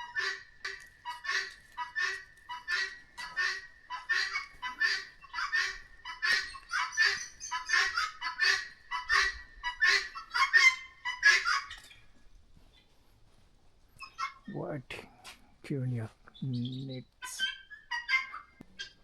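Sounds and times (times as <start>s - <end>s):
bird calling rapidly: 0.0s - 12.0s, 16.3s - 19.0s.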